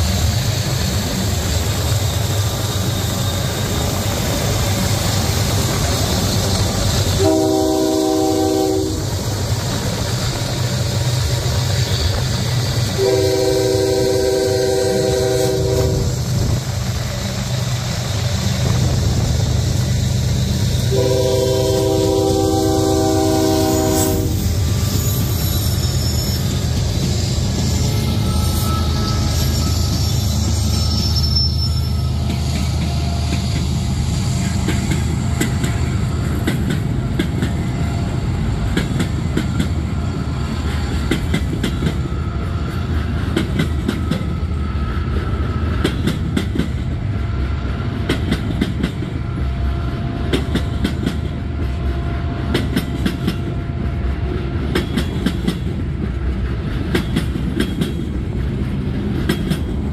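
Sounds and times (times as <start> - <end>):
diesel locomotive engines rumbling: 0.0 - 59.9
faint wheel squeal: 24.5 - 32.6
train wheels clattering over rail joints: 32.0 - 47.1, 47.7 - 49.5, 50.2 - 59.9.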